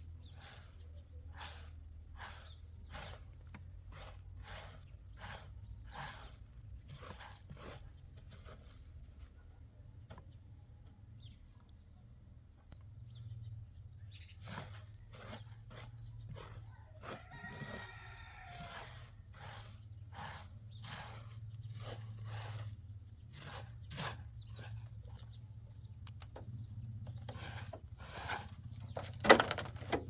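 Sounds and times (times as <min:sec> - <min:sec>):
crunching footsteps: 0:06.9 - 0:09.4, 0:14.4 - 0:30.0.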